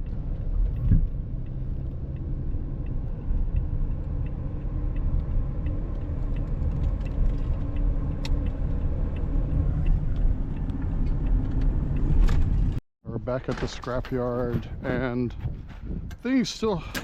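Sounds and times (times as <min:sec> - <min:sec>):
vehicle rumble from inside: 0:00.0 - 0:12.8.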